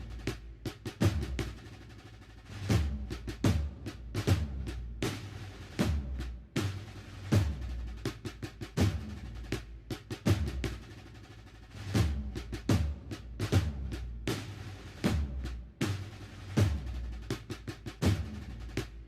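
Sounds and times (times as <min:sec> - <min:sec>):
snare drum strokes and rolls: 0:00.0 - 0:19.0.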